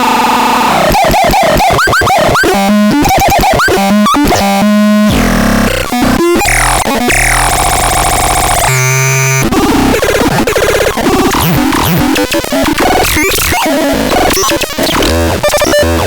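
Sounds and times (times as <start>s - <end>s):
synthesizer effect sounds: 0.9s - 13.6s.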